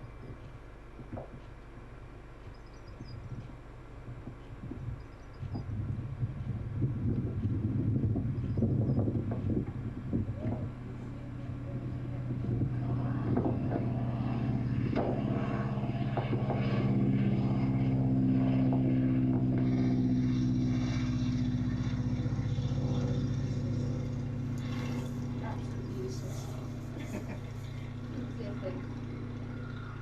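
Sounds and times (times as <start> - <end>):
engine low drone: 0.0 - 30.0
knocks and rattles: 0.2 - 5.6.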